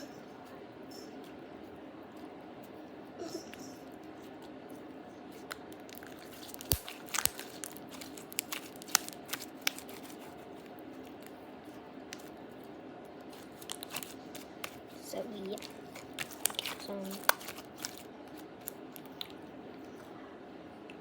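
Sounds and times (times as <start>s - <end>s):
slime squished by hand: 5.3s - 10.4s, 13.2s - 19.4s.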